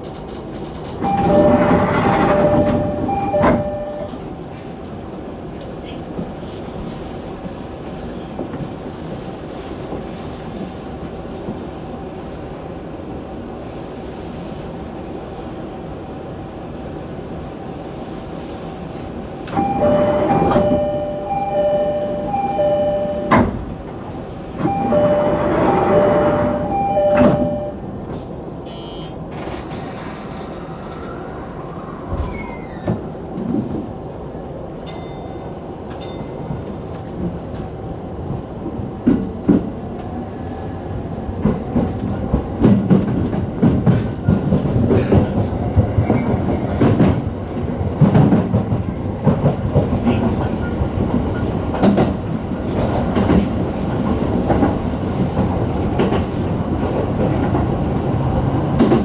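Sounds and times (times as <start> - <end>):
rail noise: 0.0 - 59.0
pulsed two-pitch warning signal: 1.0 - 4.2, 19.6 - 23.5, 24.6 - 27.8, 28.7 - 29.1
electric train whine: 1.0 - 4.3, 19.4 - 33.0.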